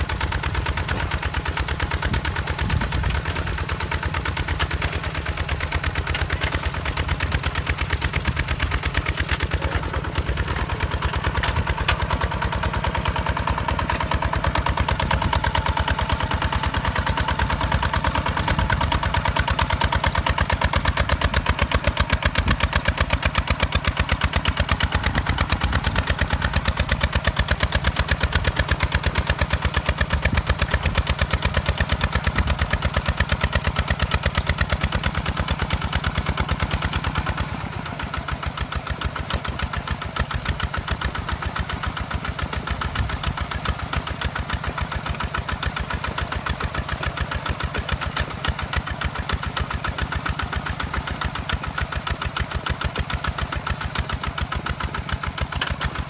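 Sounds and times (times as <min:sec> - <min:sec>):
diesel engine chugging: 0:00.0 - 0:56.0.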